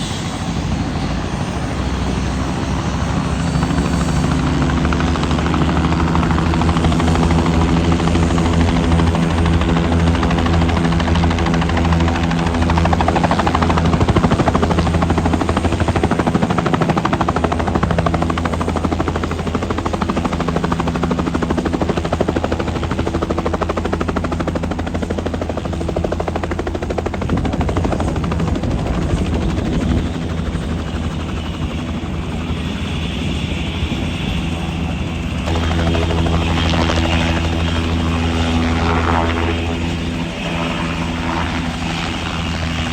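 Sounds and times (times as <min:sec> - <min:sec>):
helicopter rotor chop: 0:00.0 - 0:42.9
high whine: 0:29.1 - 0:42.7.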